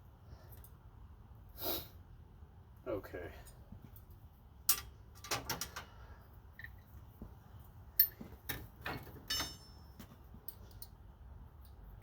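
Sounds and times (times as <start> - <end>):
short metallic ring: 9.3 - 10.0.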